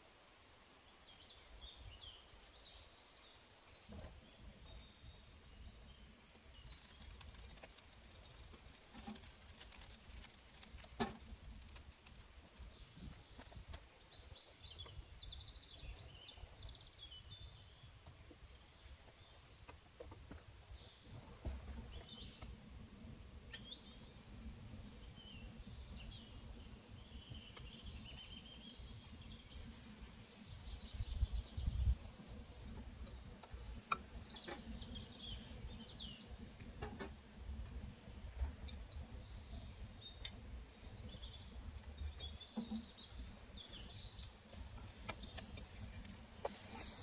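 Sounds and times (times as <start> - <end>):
small birds chirping: 1.0 - 47.0
faint clicks: 23.5 - 39.1.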